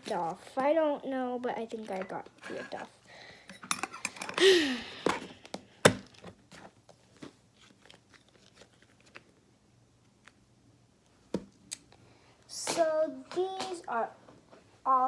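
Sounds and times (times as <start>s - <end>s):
rustling: 6.0s - 10.4s.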